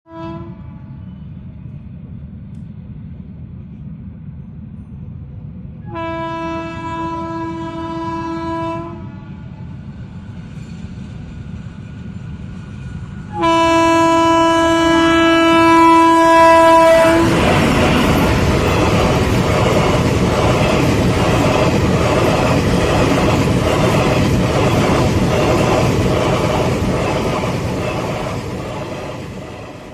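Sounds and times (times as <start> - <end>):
train horn blasts: 0.1 - 1.2, 5.8 - 9.6, 13.3 - 17.4
train passing with loud rush: 0.1 - 29.9.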